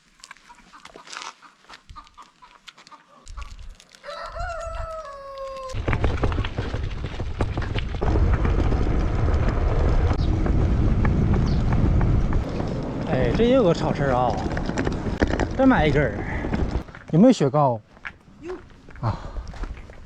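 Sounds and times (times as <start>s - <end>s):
rooster crowing: 4.0s - 5.8s
loud low rumbling: 7.9s - 16.8s.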